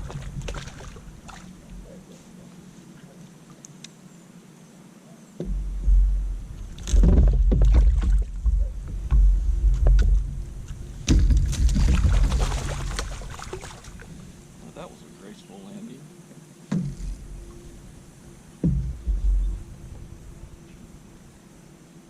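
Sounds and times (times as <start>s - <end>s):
thumps and clatter against kayak hull: 5.4s - 13.7s, 16.7s - 17.2s, 18.6s - 20.1s.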